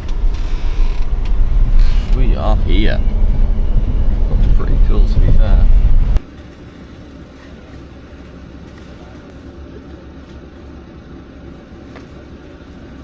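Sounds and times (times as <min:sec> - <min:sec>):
steady low rumble: 0:00.0 - 0:06.3.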